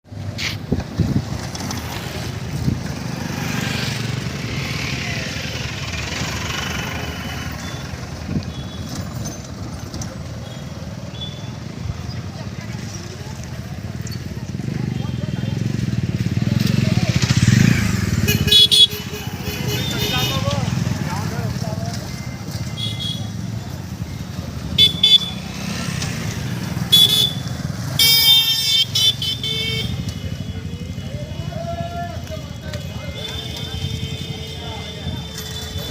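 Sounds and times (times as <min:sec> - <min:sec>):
low rumble of traffic: 0:00.1 - 0:35.9
vehicle horns honking: 0:06.6 - 0:09.0, 0:10.4 - 0:11.8, 0:17.4 - 0:21.1, 0:22.6 - 0:23.6, 0:24.6 - 0:25.8, 0:26.8 - 0:31.8, 0:32.5 - 0:35.9.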